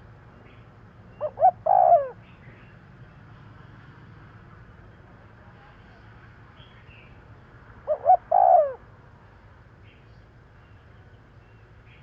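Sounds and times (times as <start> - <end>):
dove cooing: 1.2 - 2.2, 7.9 - 8.8.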